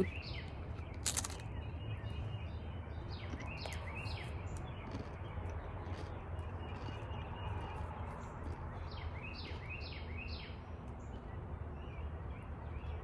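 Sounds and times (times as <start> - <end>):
sharp crunch: 0.0 - 1.7, 3.0 - 10.4
birds chirping: 0.0 - 13.0
outdoor background noise: 0.0 - 13.0.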